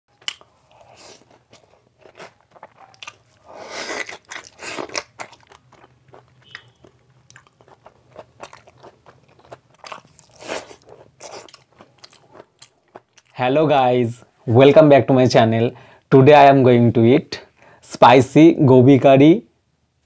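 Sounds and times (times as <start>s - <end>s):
man chewing food: 0.1s - 13.4s.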